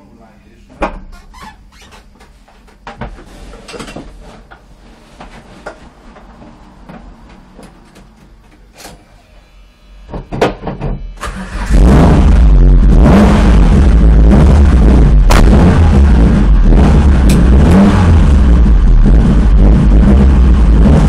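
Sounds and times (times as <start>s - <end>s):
car engine running loud: 11.2s - 21.0s.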